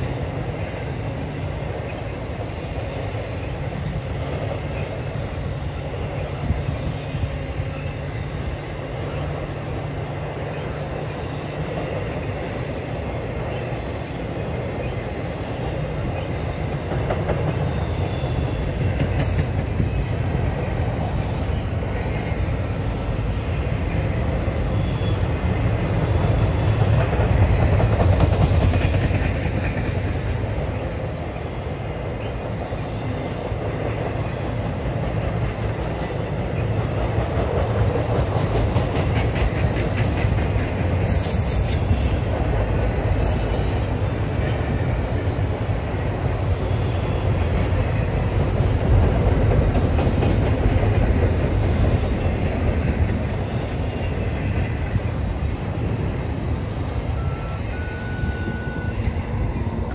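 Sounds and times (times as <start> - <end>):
freight train wheels rumbling on rail: 0.0 - 59.9
wheels clicking over rail joints: 25.4 - 57.0.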